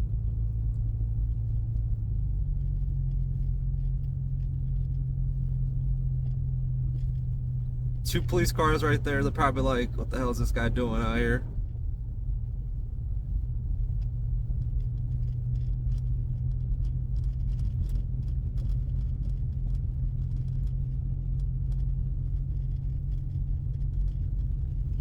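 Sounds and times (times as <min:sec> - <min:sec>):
car engine drone: 0:06.9 - 0:12.6.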